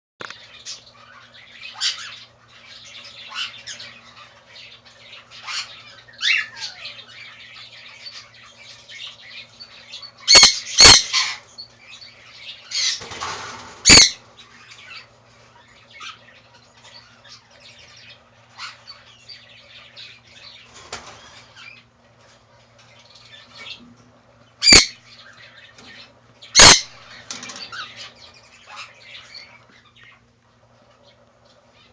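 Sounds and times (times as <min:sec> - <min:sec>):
baby cockatiel chirping: 0:05.4 - 0:07.1, 0:10.0 - 0:11.4, 0:13.9 - 0:14.2, 0:24.6 - 0:25.0, 0:26.6 - 0:27.0
cockatiel squawks: 0:10.3 - 0:11.4, 0:13.8 - 0:14.2, 0:24.6 - 0:25.0, 0:26.6 - 0:27.0.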